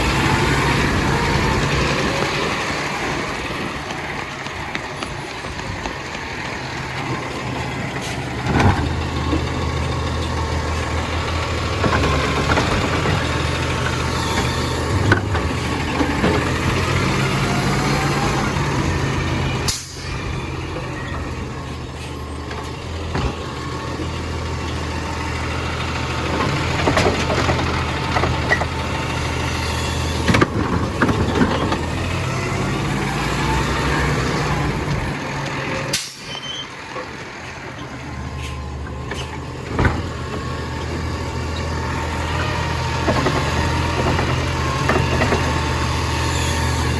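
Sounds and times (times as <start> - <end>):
truck engine running: 0.0 - 46.9
sharp knocks and clanks: 39.0 - 41.0.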